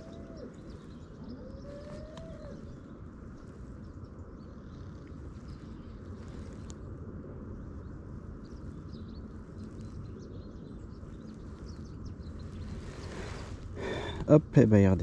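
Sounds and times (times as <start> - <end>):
faint bird chirps: 0.0 - 6.8
open air rumble: 0.0 - 15.0.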